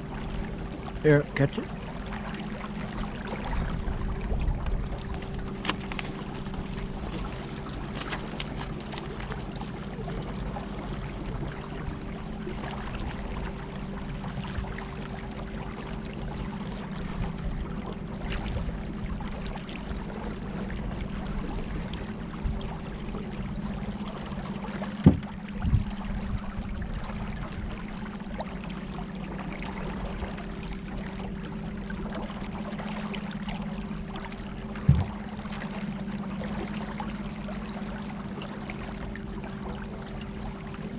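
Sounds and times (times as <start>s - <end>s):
water rushing along hull: 0.0s - 40.9s
sharp knocks: 25.0s - 25.3s, 34.8s - 35.2s.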